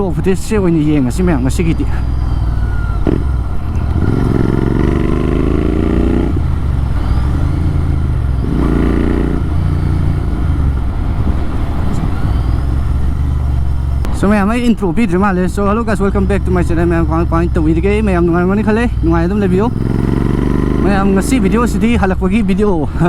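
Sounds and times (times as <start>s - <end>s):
motorcycle exhaust note: 1.1s - 14.2s, 16.1s - 22.3s.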